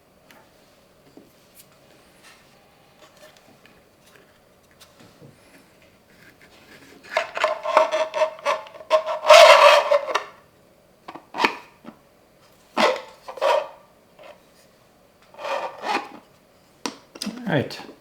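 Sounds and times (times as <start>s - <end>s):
rubbing and scraping strokes: 12.8s - 13.8s, 15.4s - 16.2s.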